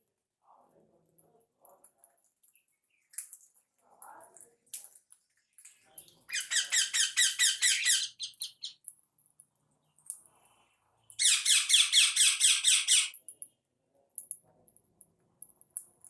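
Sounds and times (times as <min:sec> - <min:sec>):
bird shrill chattering calls: 0:06.3 - 0:08.8, 0:11.2 - 0:13.2.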